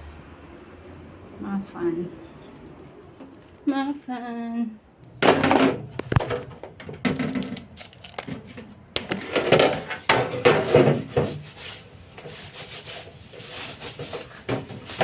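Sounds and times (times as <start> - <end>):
hand scrubbing: 11.3 - 15.0.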